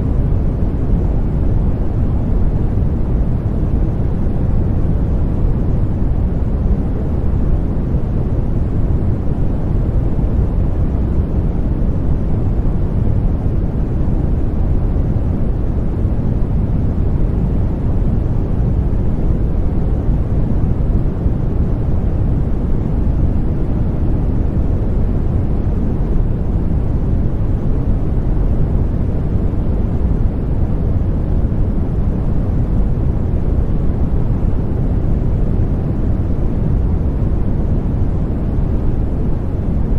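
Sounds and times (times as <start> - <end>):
deep white noise hiss: 0.0 - 39.9.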